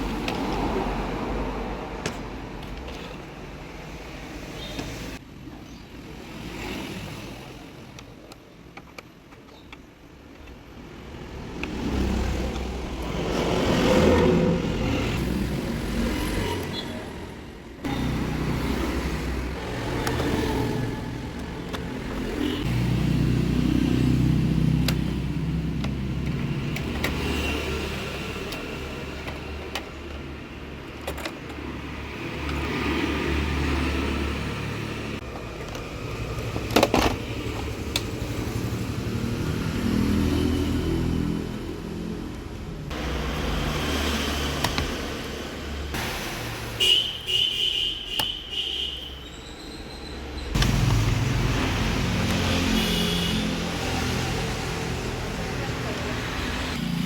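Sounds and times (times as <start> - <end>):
road traffic rumble: 0.0 - 57.0
sharp clicks and knocks: 30.9 - 31.8, 44.4 - 45.2.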